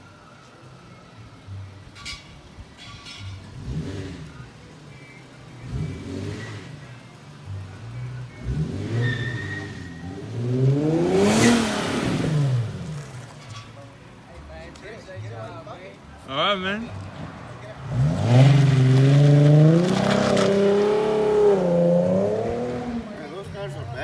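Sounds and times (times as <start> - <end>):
car engine revving: 3.1 - 13.7, 16.3 - 24.0.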